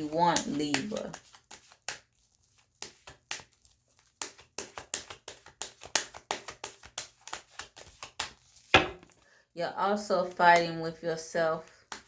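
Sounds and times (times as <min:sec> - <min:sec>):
cards being shuffled: 0:00.0 - 0:09.2.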